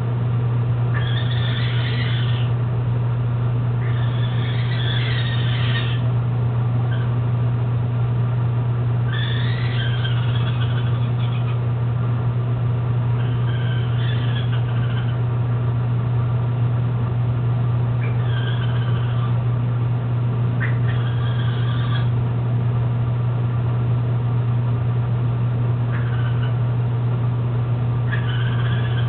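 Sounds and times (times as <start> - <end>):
steady low hum: 0.0 - 29.0
pitch-sliding bird calls: 1.0 - 2.5, 3.8 - 6.1, 9.1 - 11.6, 18.0 - 19.4, 28.1 - 29.0.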